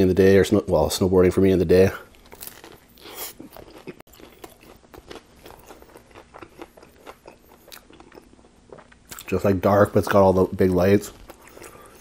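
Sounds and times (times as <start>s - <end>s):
chewing crunches and clicks: 2.1s - 9.4s, 11.1s - 12.0s.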